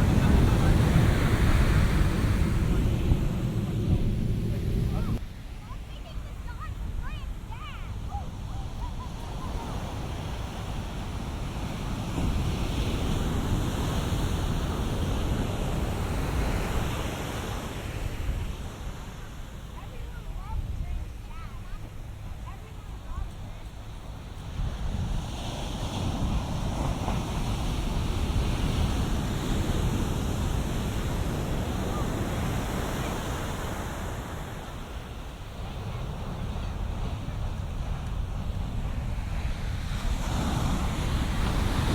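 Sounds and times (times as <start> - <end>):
wind buffeting microphone: 0.0 - 5.3, 5.9 - 41.9
low rumble of surf: 0.0 - 41.9
waves crashing on sand: 0.0 - 41.9.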